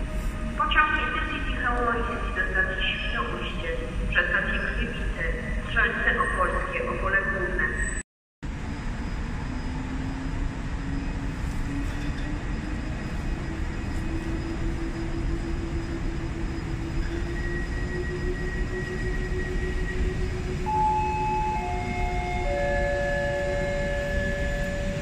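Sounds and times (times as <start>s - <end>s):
electric locomotive hum rising: 0.0s - 6.6s, 7.8s - 25.0s
train wheels rumbling on rails: 8.5s - 25.0s
high ringing tones: 14.3s - 25.0s.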